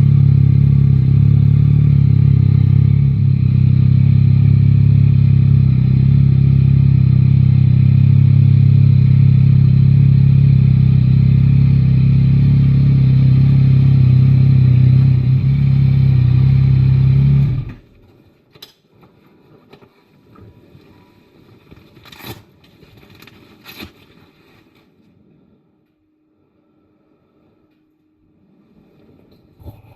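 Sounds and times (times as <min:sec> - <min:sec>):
motorcycle engine running: 0:00.0 - 0:18.0
faint clicks and rustles: 0:17.9 - 0:25.2.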